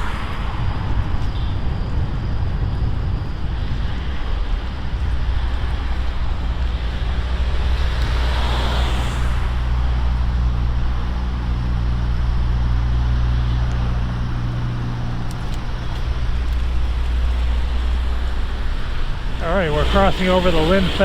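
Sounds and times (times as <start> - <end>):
car passing with a rush: 0.0 - 21.0
low engine hum: 0.0 - 21.0
low rumble: 0.0 - 21.0.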